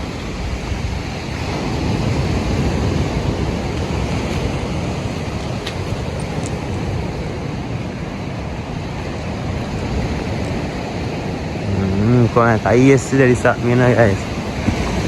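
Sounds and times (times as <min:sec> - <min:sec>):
sea surf: 0:00.0 - 0:15.0
wind on microphone: 0:00.0 - 0:15.0.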